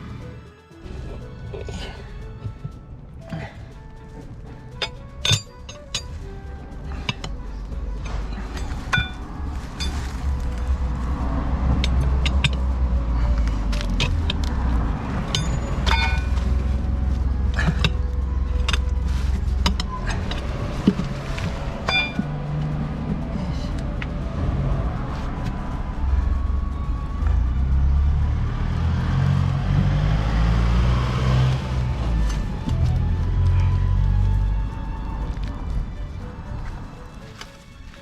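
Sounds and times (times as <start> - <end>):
steady low rumble: 0.0 - 38.0
metal tools clinking on wheel rim: 1.0 - 24.2.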